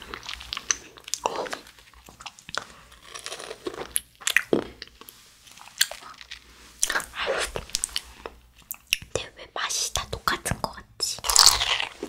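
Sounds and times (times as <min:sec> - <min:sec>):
wet mouth clicks and smacks: 0:07.8 - 0:09.2.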